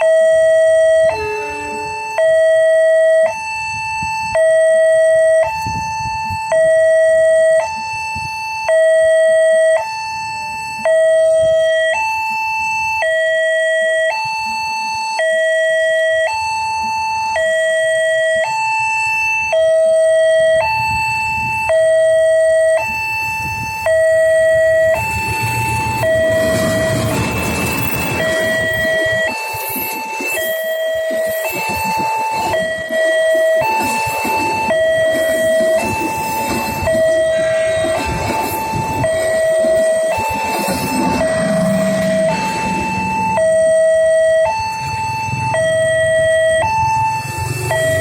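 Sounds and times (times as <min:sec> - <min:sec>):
two-tone level crossing alarm: 0:00.0 - 0:48.0
low rumble: 0:36.9 - 0:44.4.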